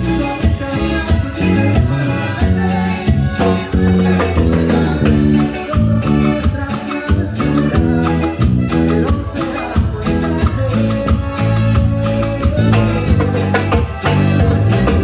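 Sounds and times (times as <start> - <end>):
latin dance music: 0.0 - 15.0
maracas shaking: 0.0 - 15.0.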